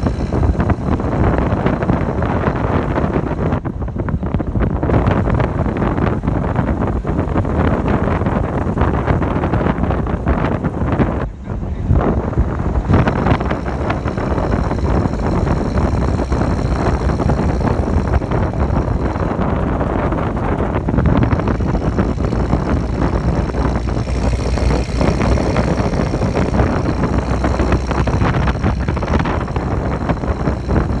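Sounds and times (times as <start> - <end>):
vehicle engine rumbling: 0.0 - 31.0
high-pitched whining: 12.1 - 31.0.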